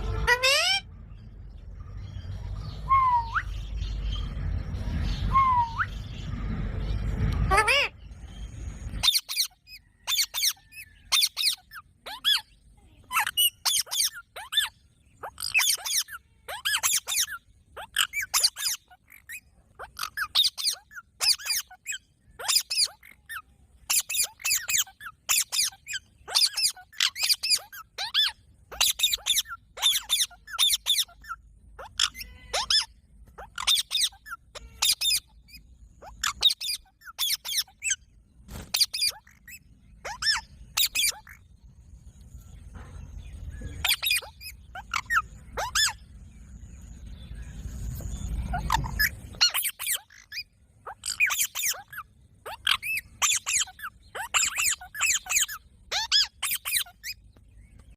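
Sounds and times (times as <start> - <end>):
parrot squeaky calls: 0.0 - 0.9, 7.4 - 8.0, 8.9 - 38.0, 38.7 - 41.5, 43.7 - 46.1, 48.3 - 57.2.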